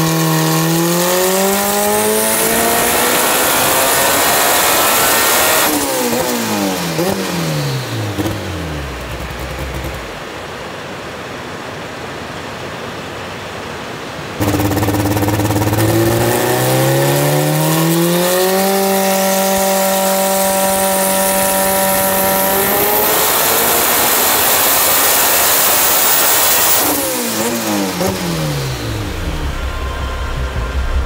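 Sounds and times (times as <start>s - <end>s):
engine running under load: 0.0s - 10.3s, 14.4s - 31.0s
thin rising whine: 14.4s - 31.0s.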